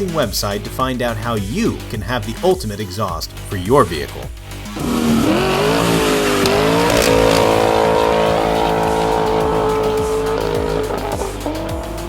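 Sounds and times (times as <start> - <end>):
car engine revving: 4.4 - 12.0.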